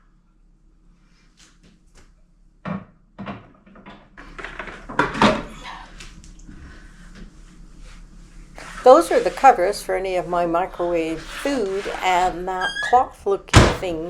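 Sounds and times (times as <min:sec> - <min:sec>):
sharp knocks: 0:02.7 - 0:04.0.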